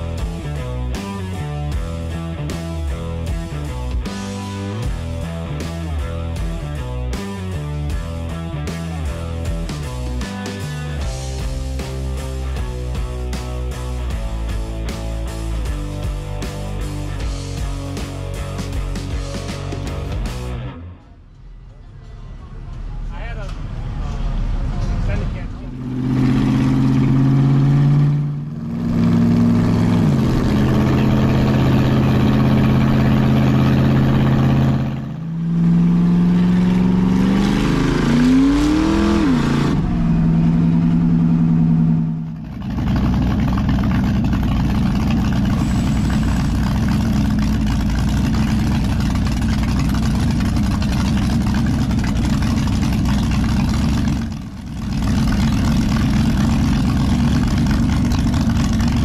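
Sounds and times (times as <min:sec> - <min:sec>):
deep rough engine rumble: 0:00.0 - 0:59.0
vehicle engine humming: 0:00.0 - 0:59.0
engine revving: 0:23.3 - 0:59.0.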